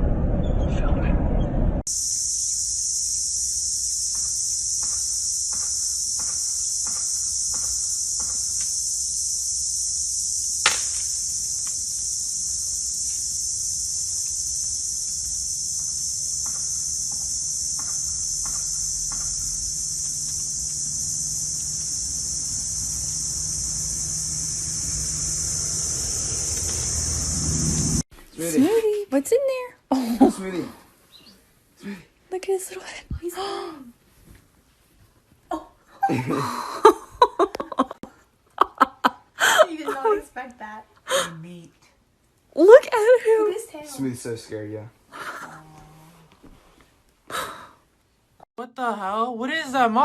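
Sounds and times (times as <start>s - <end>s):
rattlesnake rattling: 1.9s - 28.0s.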